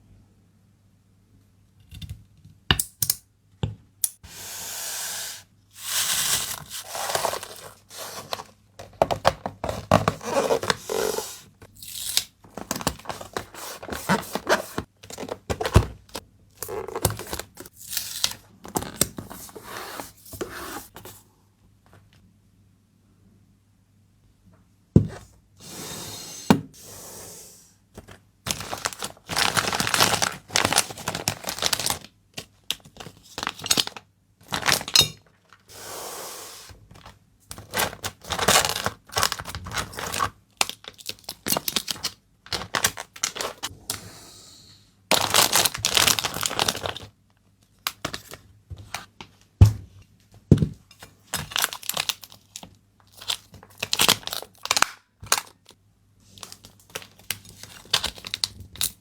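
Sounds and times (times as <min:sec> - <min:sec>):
packaging tearing and crinkling: 0:05.9 - 0:08.5, 0:28.5 - 0:32.1, 0:32.8 - 0:35.6, 0:37.0 - 0:43.7, 0:45.1 - 0:47.1, 0:51.4 - 0:55.7, 0:56.4 - 0:59.0.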